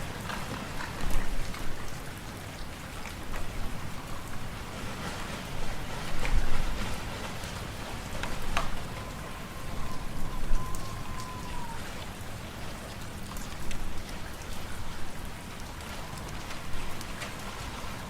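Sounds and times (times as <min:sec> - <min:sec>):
low rumble of wind: 0:00.0 - 0:18.0
faint whistling tone: 0:08.8 - 0:11.8.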